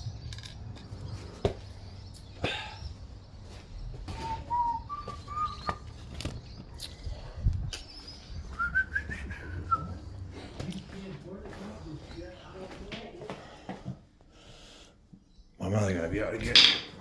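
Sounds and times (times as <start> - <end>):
person whistling a tune: 4.2 - 5.8, 8.6 - 10.0.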